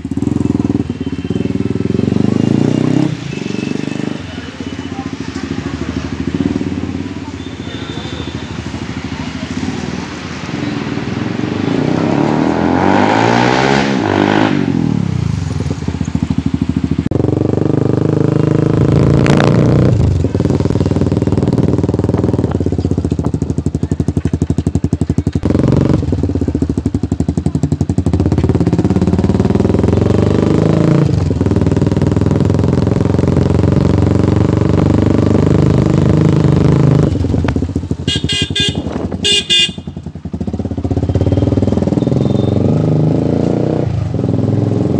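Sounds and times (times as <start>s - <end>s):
motorcycle engine revving: 0.0s - 44.9s
vehicle horn honking: 7.3s - 8.7s, 38.0s - 40.1s, 41.0s - 42.7s.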